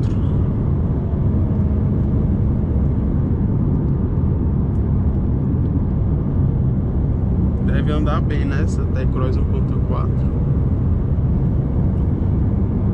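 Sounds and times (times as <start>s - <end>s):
car engine drone: 0.0s - 12.9s
road noise: 0.0s - 12.9s.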